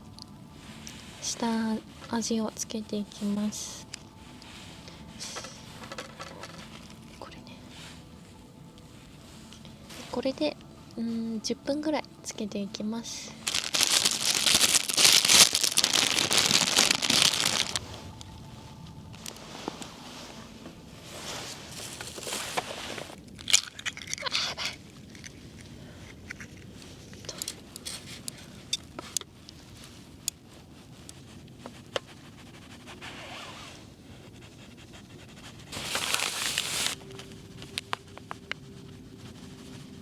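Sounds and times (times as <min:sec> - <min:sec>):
rustling and crinkling: 0:00.0 - 0:40.0
small clicks and crunches: 0:13.4 - 0:19.8, 0:21.8 - 0:29.6.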